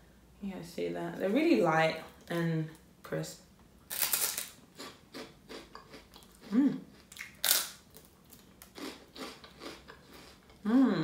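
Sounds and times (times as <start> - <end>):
crunching and chewing crispbread: 3.9 - 10.7
person humming: 6.5 - 6.9, 10.6 - 11.0.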